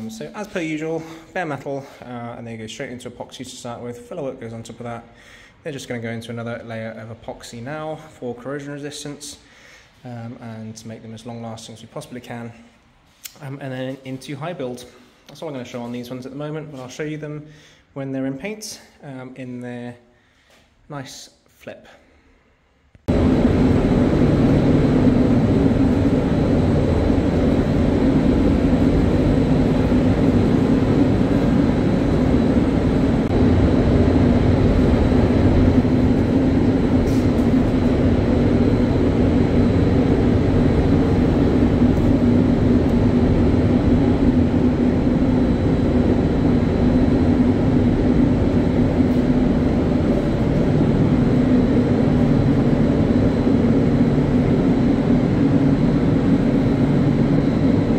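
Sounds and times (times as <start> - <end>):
air-handling fans droning: 0.0 - 17.8, 23.0 - 57.9
rushing air: 23.1 - 57.9.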